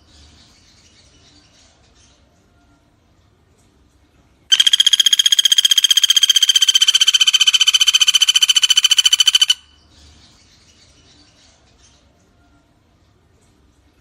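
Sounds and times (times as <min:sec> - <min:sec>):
woodpecker rattling trill: 0:04.5 - 0:09.7.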